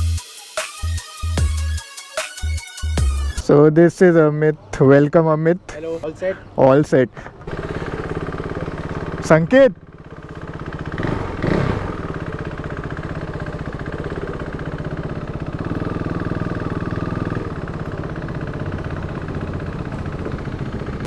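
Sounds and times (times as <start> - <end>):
motorcycle engine running: 7.4 - 21.0.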